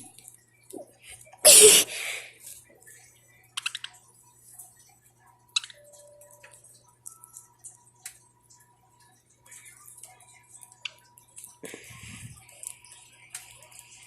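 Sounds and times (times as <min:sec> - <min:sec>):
parakeets clicking and tapping: 0:03.5 - 0:04.0, 0:05.5 - 0:11.7.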